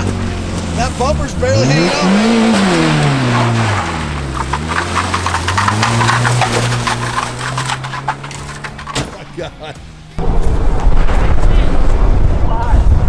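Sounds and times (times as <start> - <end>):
car rattling and clicking: 0.0 - 10.2
car engine revving: 0.0 - 12.5.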